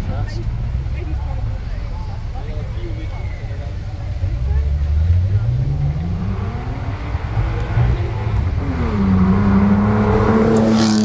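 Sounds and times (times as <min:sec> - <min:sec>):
car engine accelerating uphill: 0:00.0 - 0:11.0.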